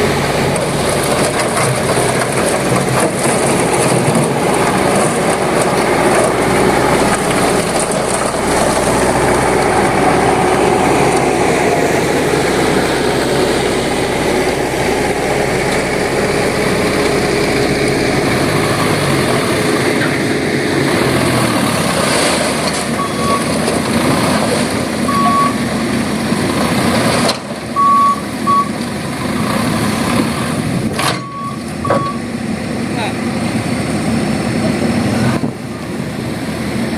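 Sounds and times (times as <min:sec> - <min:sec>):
truck diesel engine droning: 0:00.0 - 0:36.9.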